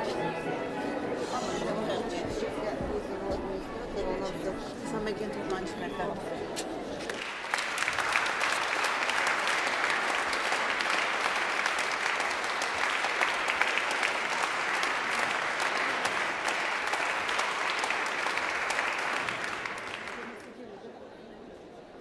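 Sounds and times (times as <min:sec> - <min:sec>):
crowd applauding: 0:07.0 - 0:20.6.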